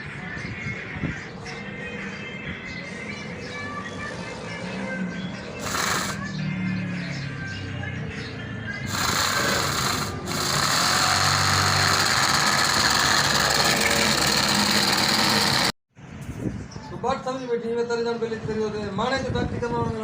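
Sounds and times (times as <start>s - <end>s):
music: 0.0s - 13.4s
small motor chattering: 5.6s - 6.3s, 8.9s - 15.7s.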